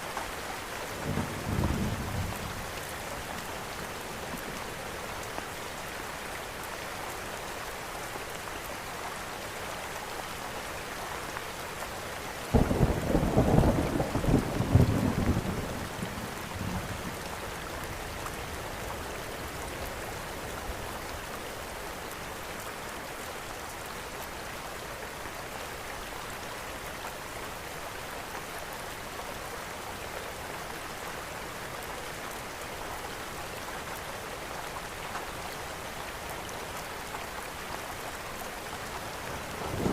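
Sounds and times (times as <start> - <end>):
thunder clap and rumble: 39.5 - 39.9.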